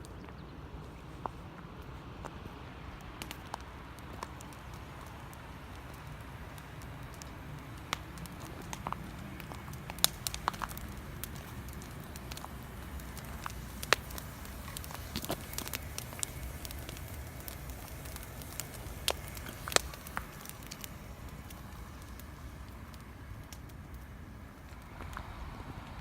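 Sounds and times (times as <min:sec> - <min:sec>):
campfire crackling: 0:00.0 - 0:26.0
loud fire pops: 0:03.0 - 0:26.0.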